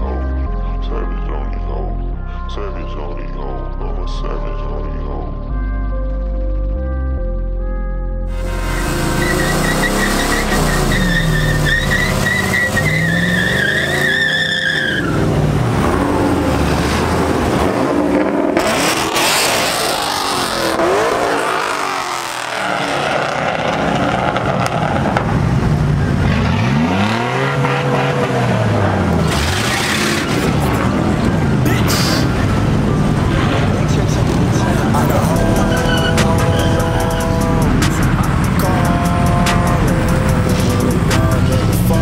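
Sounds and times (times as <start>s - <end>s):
truck engine revving: 8.3s - 42.0s
tires squealing: 8.4s - 42.0s.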